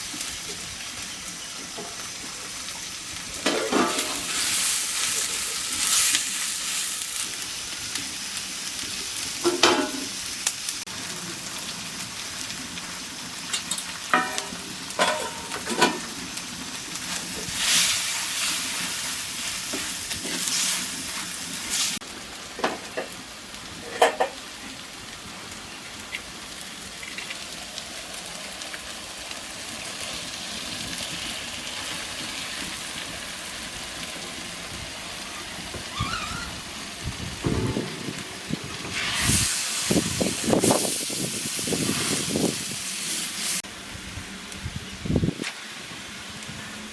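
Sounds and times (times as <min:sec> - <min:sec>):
meat sizzling in a pan: 0:00.0 - 0:46.9
spatula knocking and scraping pan: 0:14.1 - 0:16.0, 0:37.4 - 0:39.0.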